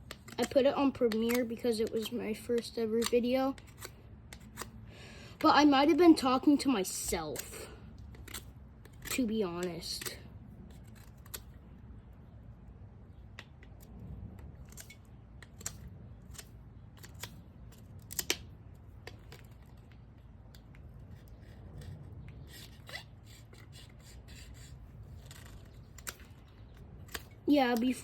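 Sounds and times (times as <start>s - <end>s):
knife carving wood: 0.0s - 4.8s, 5.4s - 11.8s, 14.4s - 28.0s.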